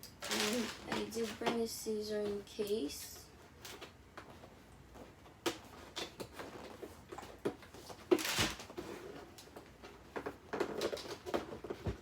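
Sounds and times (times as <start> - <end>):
cardboard tearing: 8.0 - 8.8.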